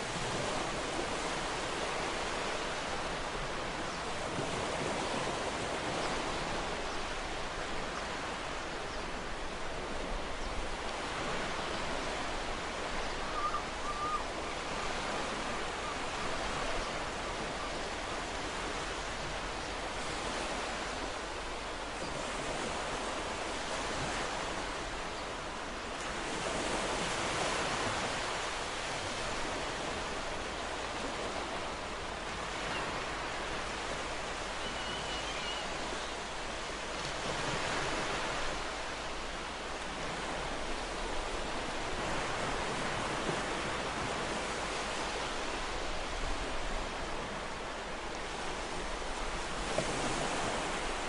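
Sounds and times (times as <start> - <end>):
ocean waves breaking: 0.0 - 51.0.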